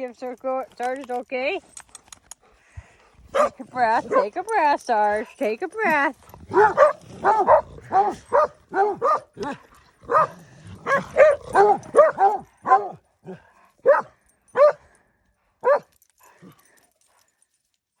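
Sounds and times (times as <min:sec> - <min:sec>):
dog barking: 0:03.3 - 0:04.3, 0:06.5 - 0:13.0, 0:13.8 - 0:14.8, 0:15.6 - 0:15.9.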